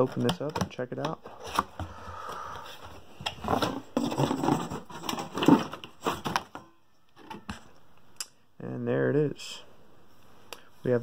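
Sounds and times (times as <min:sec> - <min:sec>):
packaging rustling and scraping: 0:02.6 - 0:06.6.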